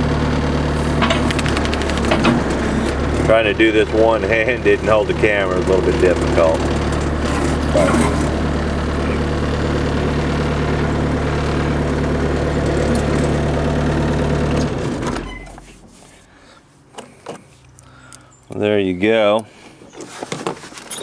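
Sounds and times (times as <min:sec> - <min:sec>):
diesel engine running and shutting off: 0:00.0 - 0:18.8
light clicks: 0:16.9 - 0:18.7.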